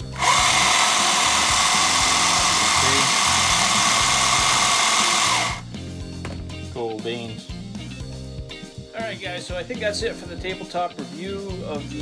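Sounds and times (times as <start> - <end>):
electric motor high whine: 0.0 - 5.6.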